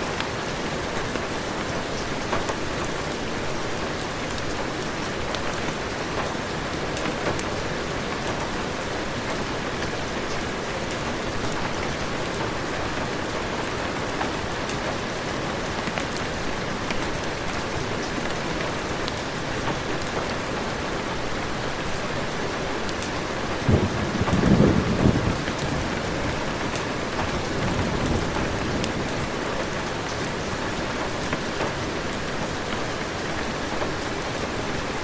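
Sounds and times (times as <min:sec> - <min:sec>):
heavy rain: 0:00.0 - 0:35.0
raindrop ticks: 0:01.9 - 0:03.2, 0:03.9 - 0:13.0, 0:22.9 - 0:34.4.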